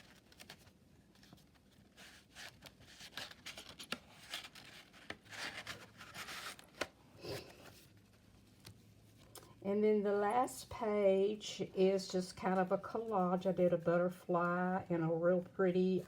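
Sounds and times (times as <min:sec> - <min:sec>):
paper pages rustling: 0:00.0 - 0:09.3.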